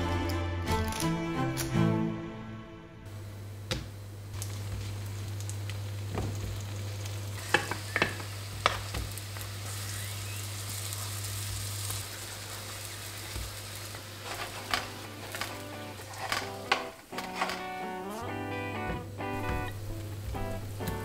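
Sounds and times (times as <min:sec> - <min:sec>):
steady low hum: 0:00.0 - 0:21.0
pancakes sizzling in oil: 0:04.0 - 0:18.2.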